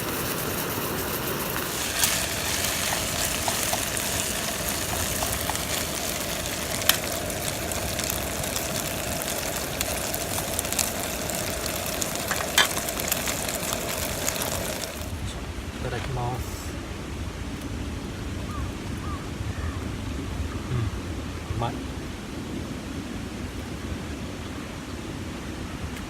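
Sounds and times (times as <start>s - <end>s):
meat sizzling on a grill: 0.0s - 15.2s
fat popping: 1.1s - 15.0s.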